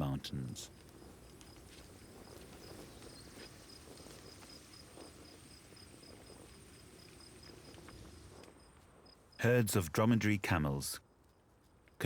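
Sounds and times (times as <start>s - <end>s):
low outdoor ambience: 0.0s - 12.0s.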